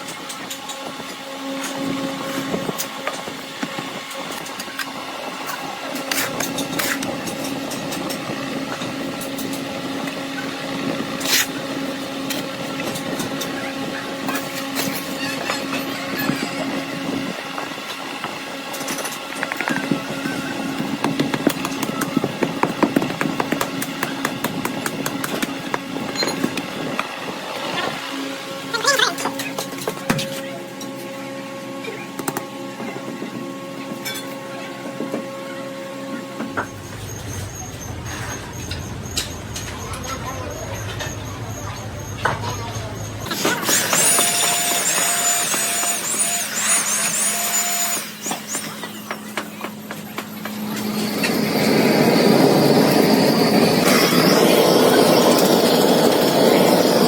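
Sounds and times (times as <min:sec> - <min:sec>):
machine hum: 0:34.9 - 0:47.9
power tool whining: 0:36.4 - 0:49.4.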